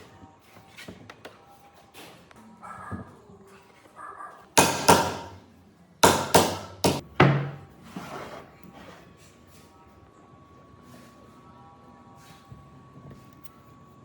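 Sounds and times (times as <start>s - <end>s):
ringing hammer blows: 4.6s - 5.4s.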